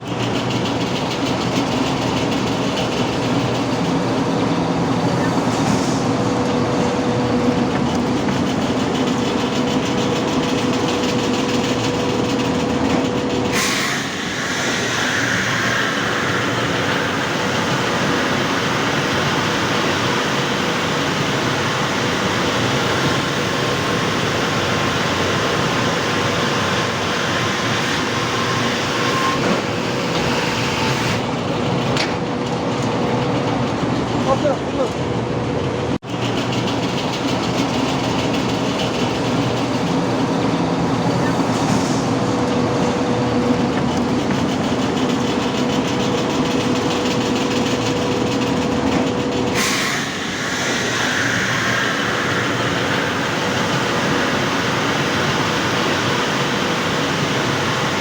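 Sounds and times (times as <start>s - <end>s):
sanding machine running: 0.0s - 34.9s, 35.9s - 58.0s.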